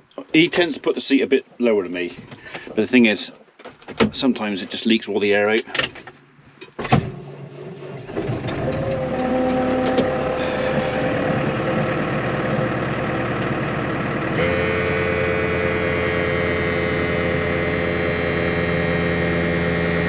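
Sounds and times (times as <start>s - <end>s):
tractor engine idling: 7.2s - 20.0s.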